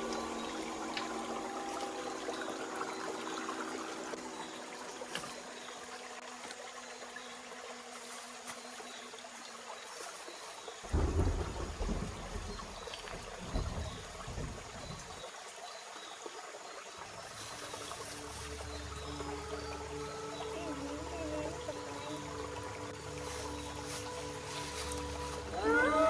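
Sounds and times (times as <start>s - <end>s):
water trickling: 0.0s - 26.0s
background music: 17.2s - 26.0s.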